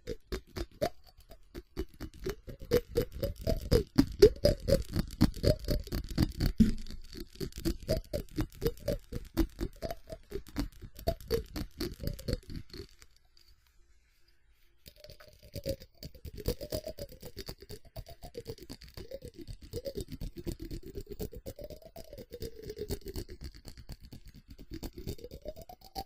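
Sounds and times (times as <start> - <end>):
tapping on ceramic: 0.2 - 11.2.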